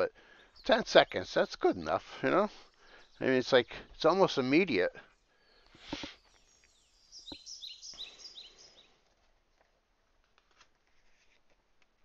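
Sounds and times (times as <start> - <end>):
bird chirping: 0.3 - 2.0, 2.8 - 4.5, 5.1 - 9.0.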